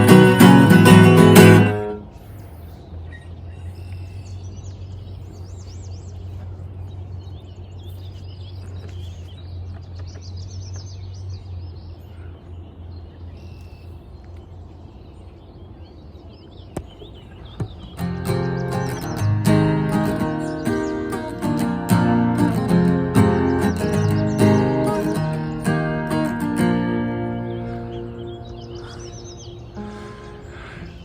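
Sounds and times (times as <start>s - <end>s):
strummed guitar music: 0.0s - 2.1s, 18.0s - 30.5s
birds chirping: 0.0s - 31.0s.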